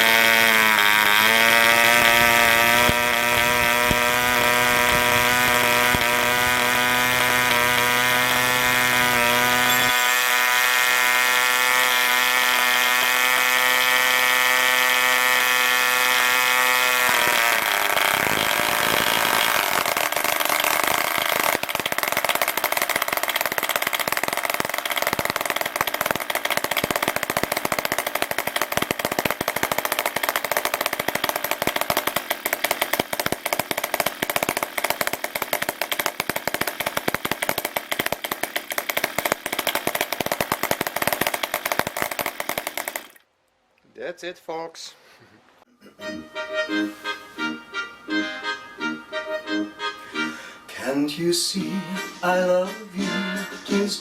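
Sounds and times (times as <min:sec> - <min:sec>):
model diesel engine buzzing: 0:00.0 - 0:19.7.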